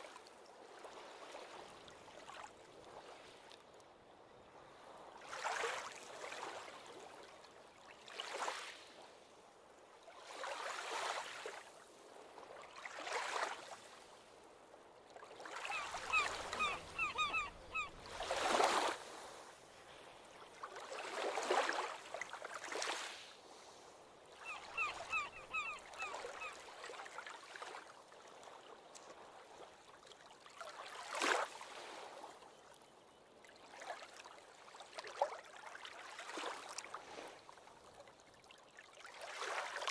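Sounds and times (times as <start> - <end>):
small waves washing onto beach: 0.0 - 32.6, 33.6 - 39.9
bird calling repeated short notes: 15.7 - 18.0, 24.5 - 26.5.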